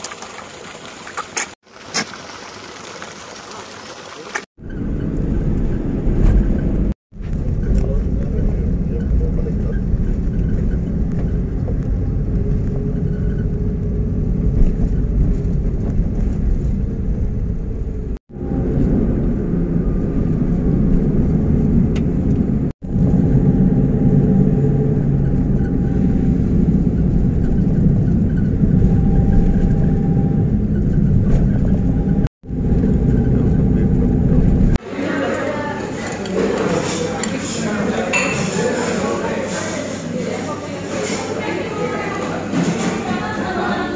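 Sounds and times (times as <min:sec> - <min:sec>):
car engine and road noise: 0:04.6 - 0:34.8.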